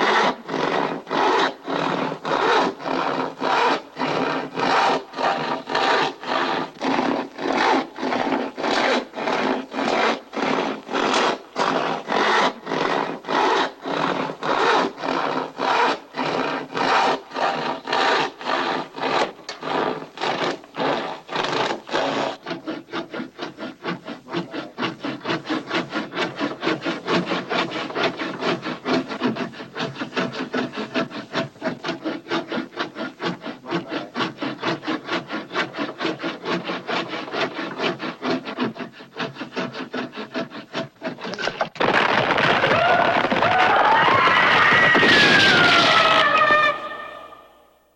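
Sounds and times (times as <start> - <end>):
handsaw cutting wood: 0.0 - 47.4.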